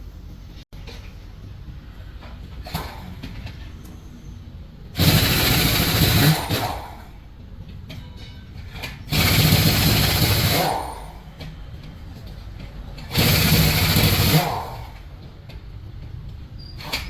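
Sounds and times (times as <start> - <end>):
power tool whirring: 4.9 - 7.1, 9.1 - 11.2, 13.0 - 15.1.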